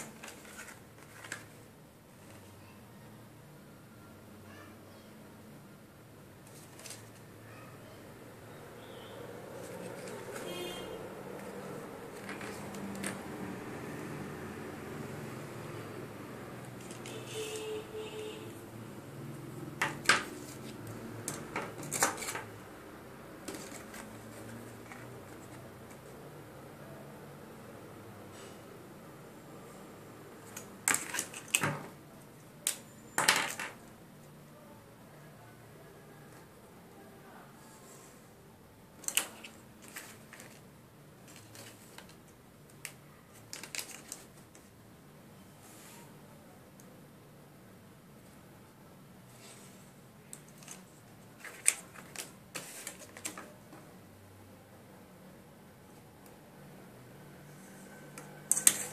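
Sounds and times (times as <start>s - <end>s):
hard objects clicking and knocking: 19.8s - 22.5s, 32.7s - 33.8s.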